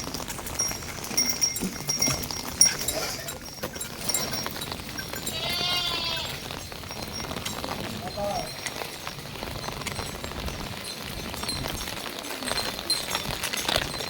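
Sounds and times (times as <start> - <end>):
rain pattering: 0.0 - 14.0
goat bleating: 5.3 - 6.4.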